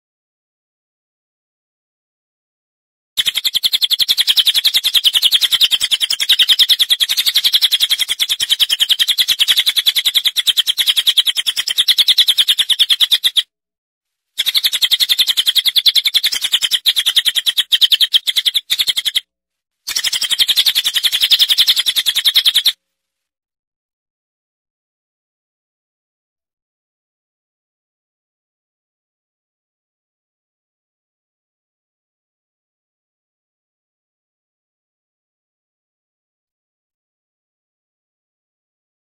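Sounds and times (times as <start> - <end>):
bird chirping rapidly: 3.2 - 13.5, 14.4 - 19.3, 19.9 - 22.8.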